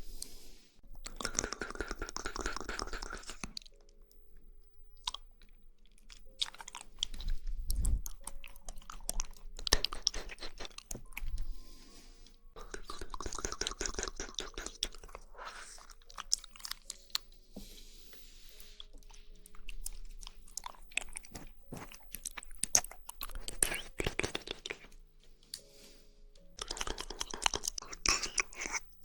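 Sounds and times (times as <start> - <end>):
wet squishing and smacking mouth: 1.0 - 3.9, 5.0 - 11.4, 12.6 - 17.3, 18.8 - 25.0, 26.6 - 28.8
tongue clicks: 1.0 - 4.2, 6.2 - 11.4, 12.6 - 15.2, 19.8 - 25.7, 26.6 - 28.9.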